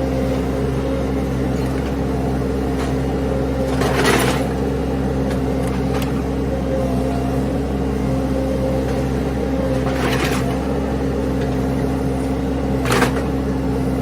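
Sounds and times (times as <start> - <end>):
skid steer engine running: 0.0 - 14.0.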